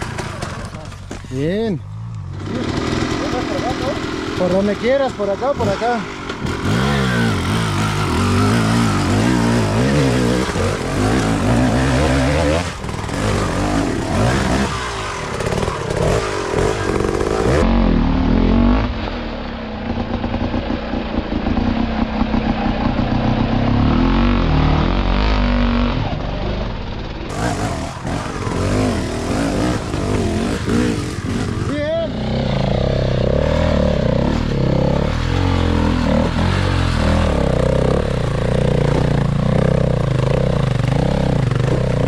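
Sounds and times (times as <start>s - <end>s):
clatters: 0.0s - 1.4s
motorcycle engine revving: 0.0s - 42.0s.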